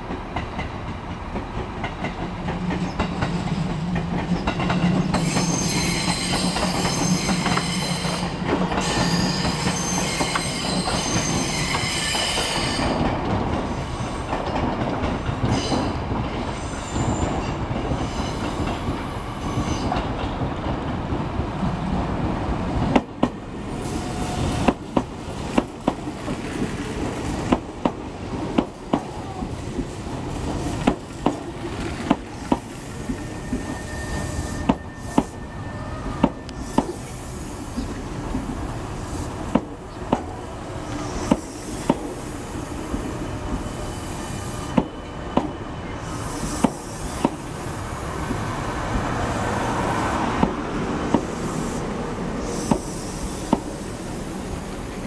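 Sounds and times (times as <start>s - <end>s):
faint wheel squeal: 33.2s - 37.9s.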